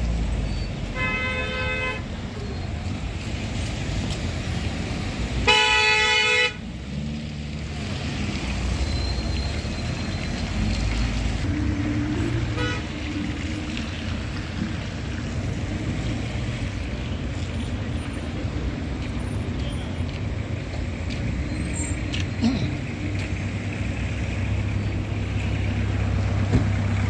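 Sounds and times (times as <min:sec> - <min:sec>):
street traffic noise: 0:00.0 - 0:27.0
vehicle horns honking: 0:00.9 - 0:02.1, 0:05.4 - 0:06.6, 0:12.4 - 0:12.9.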